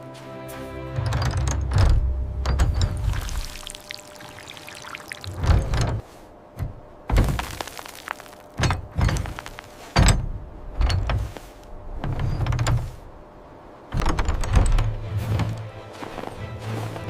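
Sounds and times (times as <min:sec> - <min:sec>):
heavy crunching thuds: 0:05.3 - 0:13.1.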